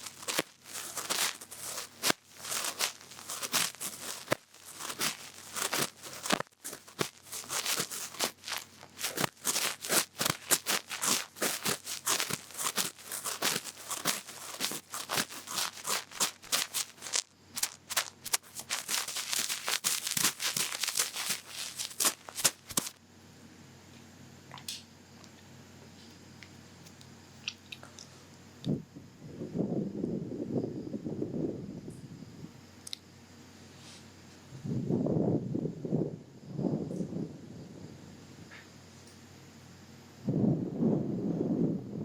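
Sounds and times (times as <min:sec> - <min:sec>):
cotton swab scratching in ear: 0:00.0 - 0:23.0.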